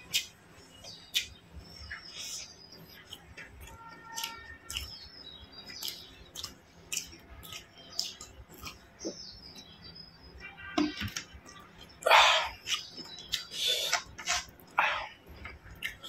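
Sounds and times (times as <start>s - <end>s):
wet chewing and lip smacks: 2.8s - 9.2s, 12.6s - 16.0s.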